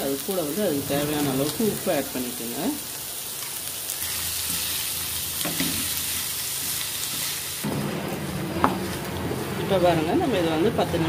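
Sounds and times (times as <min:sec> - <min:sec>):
vegetables sizzling in oil: 0:00.0 - 0:11.0
wooden spatula stirring: 0:08.1 - 0:11.0.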